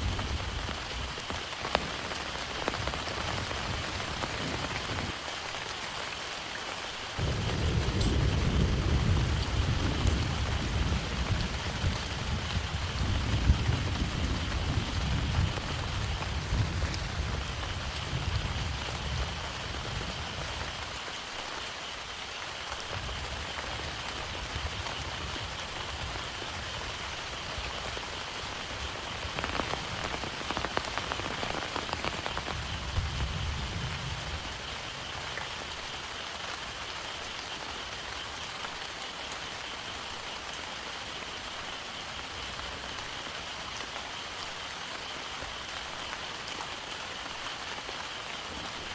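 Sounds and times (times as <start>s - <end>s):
heavy rain: 0.0s - 48.9s
raindrops pattering: 0.0s - 48.9s
thunder rumble: 7.2s - 20.9s, 23.0s - 35.4s.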